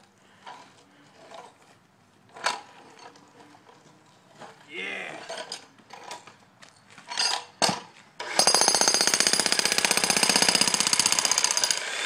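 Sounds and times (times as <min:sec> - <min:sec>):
jackhammer hammering: 0:08.2 - 0:12.0.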